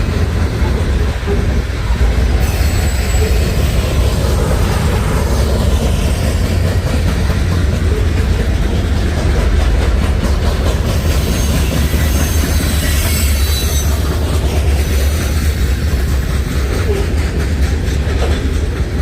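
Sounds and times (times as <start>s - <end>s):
freight train rumbling past: 0.0s - 19.0s
high wheel squeals: 2.4s - 4.5s, 11.0s - 15.1s.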